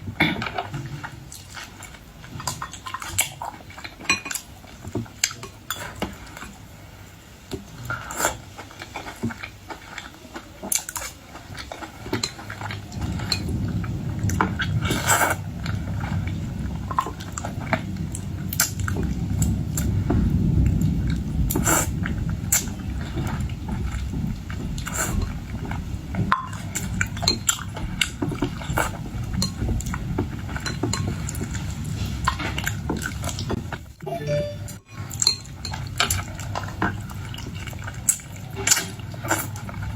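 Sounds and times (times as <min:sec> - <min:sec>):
dishes and cutlery clinking: 0:34.1 - 0:36.2.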